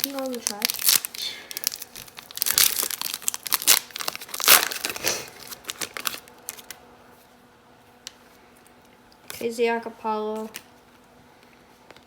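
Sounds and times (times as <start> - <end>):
plastic wrapper crinkling: 0.0 - 6.8.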